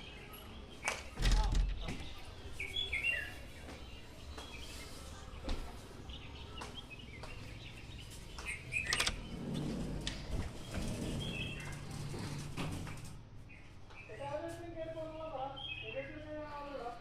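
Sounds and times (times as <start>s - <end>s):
birds chirping: 0.0s - 16.8s
outdoor background murmur: 0.0s - 17.0s
sharp clicks: 8.8s - 9.2s.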